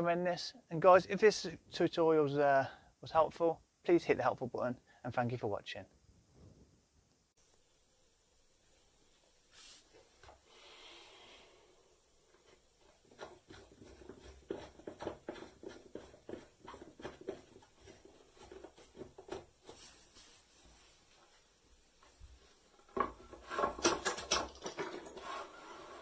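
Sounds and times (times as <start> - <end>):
rubbing handling noise: 12.3 - 26.0.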